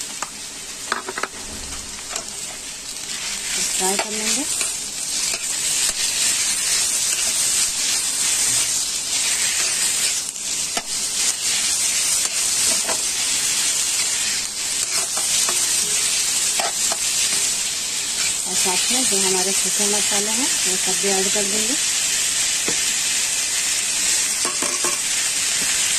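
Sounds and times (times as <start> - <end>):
mince and onions sizzling in oil: 0.0 - 25.9.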